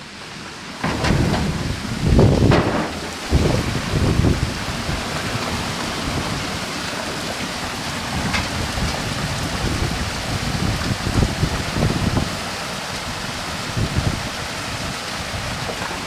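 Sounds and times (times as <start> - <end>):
low rumbles: 0.0 - 12.5
steady rain hiss: 0.0 - 16.0.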